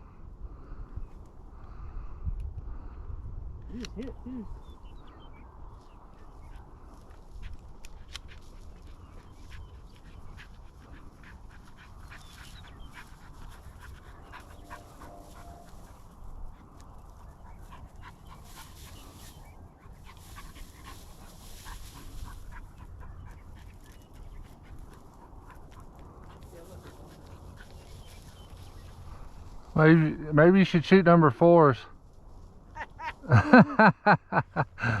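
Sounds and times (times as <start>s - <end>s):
wind rumble on microphone: 0.0s - 29.8s
dry grass crackling: 3.7s - 33.9s
dog panting: 6.2s - 29.4s.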